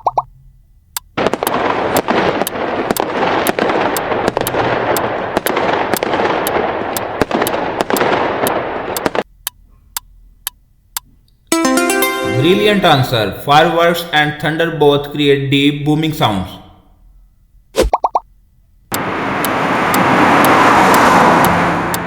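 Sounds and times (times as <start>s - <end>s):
steady ticking: 0.9s - 12.1s, 18.9s - 22.0s
fireworks crackling barrage: 1.2s - 9.2s.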